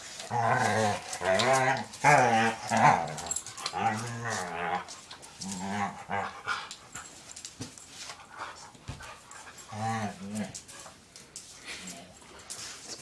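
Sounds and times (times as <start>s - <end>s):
dogs scuffling: 0.0s - 13.0s
dogs growling and whining: 0.1s - 6.8s, 9.4s - 10.6s
dogs panting: 0.9s - 13.0s.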